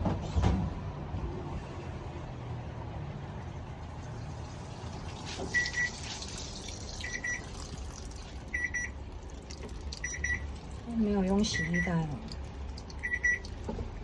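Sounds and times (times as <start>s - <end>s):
low steady rumble: 0.8s - 14.0s
washing machine beeping: 4.9s - 14.0s.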